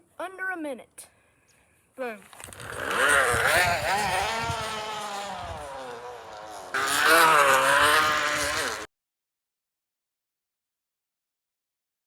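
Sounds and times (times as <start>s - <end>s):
plastic bottle buzzing on bicycle spokes: 2.4s - 8.9s.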